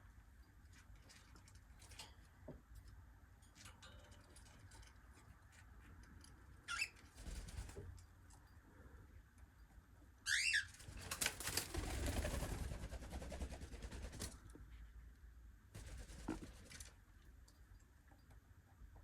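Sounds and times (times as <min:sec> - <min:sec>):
cockatiel call: 0:10.3 - 0:10.8.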